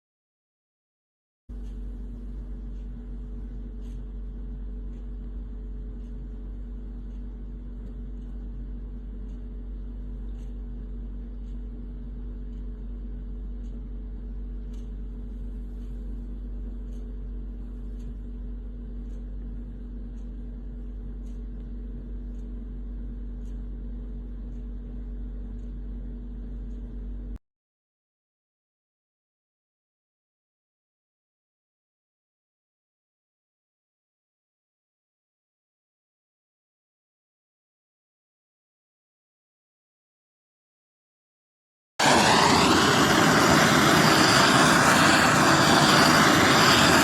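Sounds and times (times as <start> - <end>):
low hum and rumble: 1.5 - 27.4, 42.0 - 47.0
faint light ticks: 7.0 - 14.0, 14.6 - 15.1, 16.7 - 17.2, 17.8 - 18.3, 19.0 - 19.5, 20.1 - 22.6, 23.3 - 23.7, 24.4 - 27.0.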